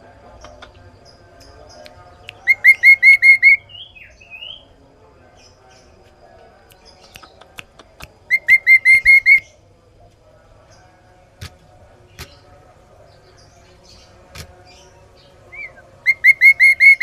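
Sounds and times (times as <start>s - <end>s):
soft bird chirps: 0.3s - 9.7s, 10.6s - 17.0s
bird whistling song: 2.3s - 4.6s, 8.3s - 9.5s, 15.5s - 17.0s.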